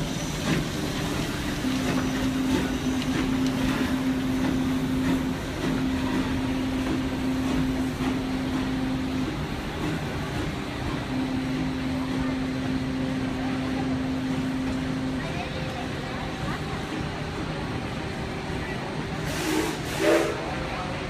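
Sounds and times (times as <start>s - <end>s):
train wheels clicking over rail joints: 0.0s - 12.2s.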